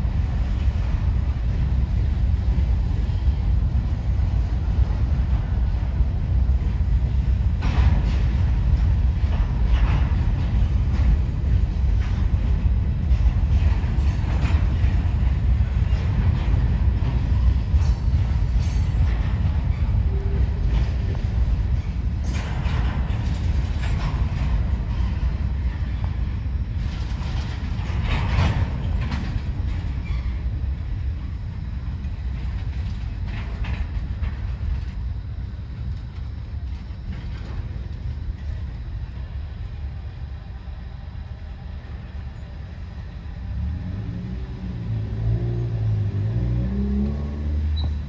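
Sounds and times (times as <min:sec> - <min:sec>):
freight train cars rolling past: 0:00.0 - 0:48.0
road vehicle engine: 0:42.3 - 0:48.0.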